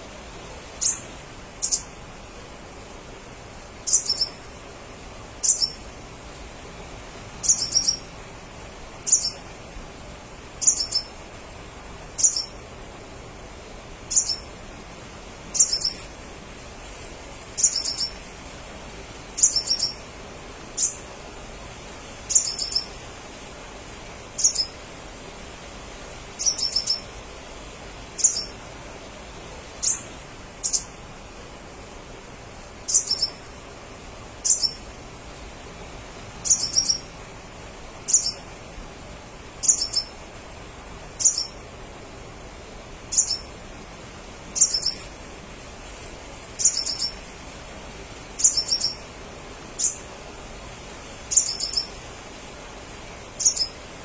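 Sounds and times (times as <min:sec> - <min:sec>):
faint steady hiss: 0:00.0 - 0:54.0
bird calling high sharp calls: 0:03.9 - 0:04.4, 0:09.1 - 0:09.4, 0:10.6 - 0:11.1, 0:14.1 - 0:14.4, 0:15.5 - 0:16.1, 0:17.6 - 0:18.2, 0:19.4 - 0:20.0, 0:22.3 - 0:23.0, 0:26.4 - 0:27.1, 0:28.2 - 0:28.5, 0:32.9 - 0:33.4, 0:36.4 - 0:37.1, 0:39.6 - 0:40.1, 0:41.2 - 0:41.6, 0:43.1 - 0:43.5, 0:44.6 - 0:45.1, 0:46.6 - 0:47.2, 0:48.4 - 0:49.0, 0:49.8 - 0:50.0, 0:51.3 - 0:52.0, 0:53.4 - 0:53.8.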